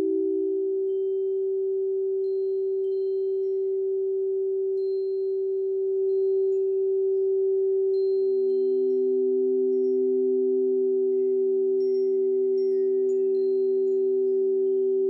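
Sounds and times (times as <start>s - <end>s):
crystal singing bowl ringing: 0.0s - 15.0s
lower bowl tone: 0.0s - 15.0s.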